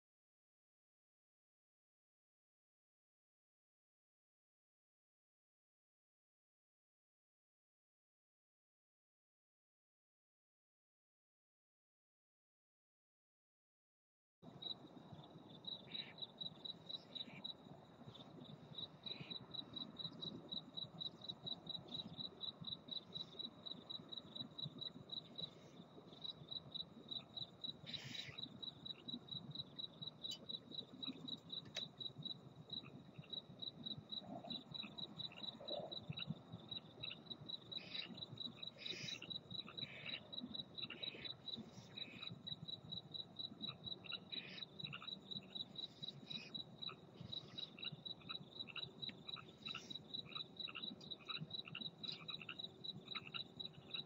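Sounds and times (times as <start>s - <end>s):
cricket chirping: 14.4s - 54.0s.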